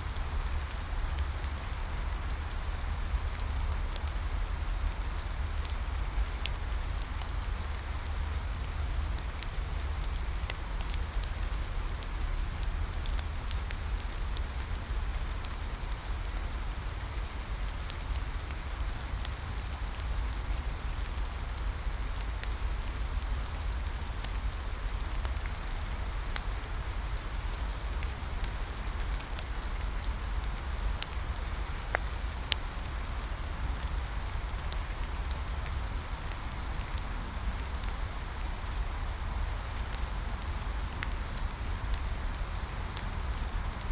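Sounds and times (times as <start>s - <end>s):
steady rain: 0.0s - 43.9s
bonfire crackling and popping: 0.1s - 43.9s.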